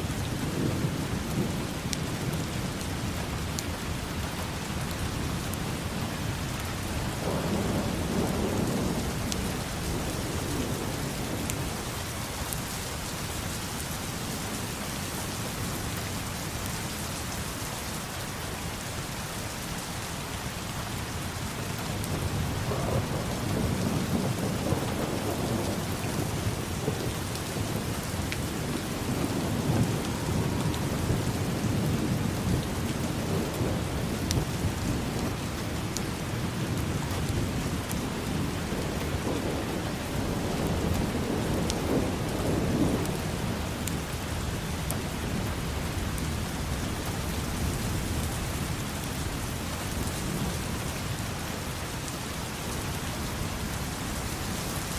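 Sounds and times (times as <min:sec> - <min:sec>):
steady rain: 0:00.0 - 0:54.9
rolling thunder: 0:06.9 - 0:12.1, 0:21.8 - 0:48.6.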